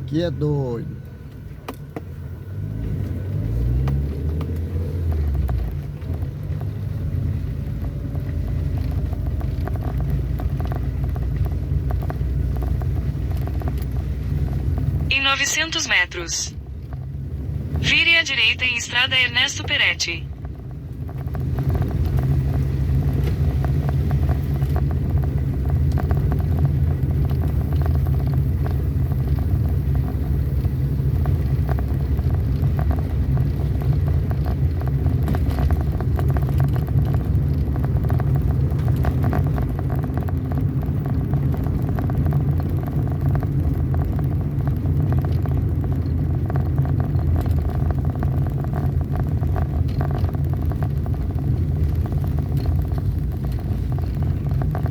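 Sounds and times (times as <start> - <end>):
vehicle engine and road rumble: 0.0 - 54.9
small knocks and rattles: 7.7 - 15.0.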